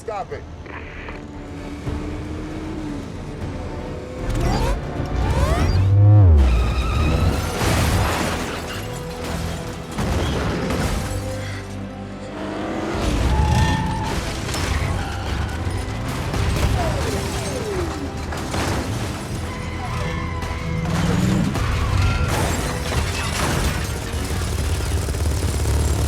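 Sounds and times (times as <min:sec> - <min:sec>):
dramatic film score: 0:00.0 - 0:26.0
car engines revving: 0:00.4 - 0:09.2, 0:11.2 - 0:26.0
tires squealing: 0:00.6 - 0:10.8, 0:12.2 - 0:26.0.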